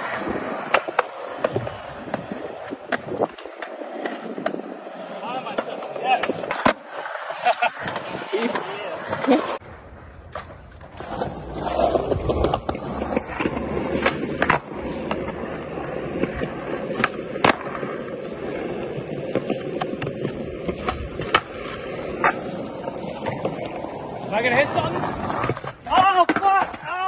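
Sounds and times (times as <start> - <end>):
skateboard wheels rolling on concrete: 0.0 - 27.0
skateboard clacks popping and landing: 0.3 - 4.8, 5.4 - 7.0, 10.2 - 18.0, 19.1 - 23.9, 25.1 - 27.0.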